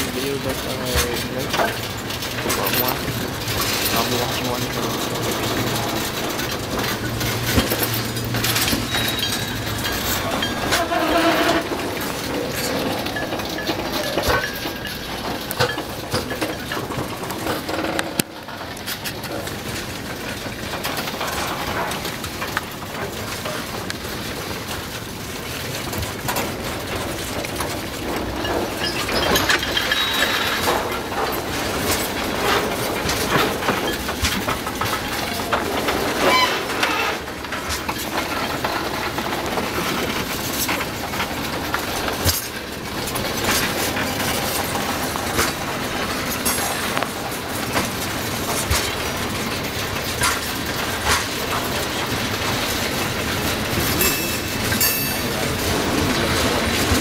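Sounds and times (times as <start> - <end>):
rail joint clicks: 0.0 - 57.0
wheel-on-rail rumble: 0.0 - 57.0
high wheel squeal: 7.6 - 14.9, 28.7 - 30.7, 36.2 - 37.3.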